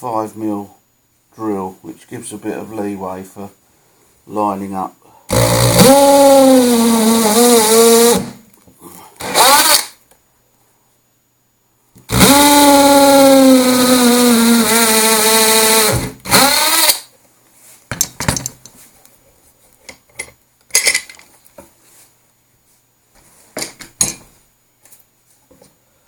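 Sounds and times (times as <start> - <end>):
electric drill boring into wood: 5.3 - 8.4, 9.2 - 10.0, 12.1 - 17.1
handling clicks and knocks: 17.9 - 18.8, 19.8 - 21.7.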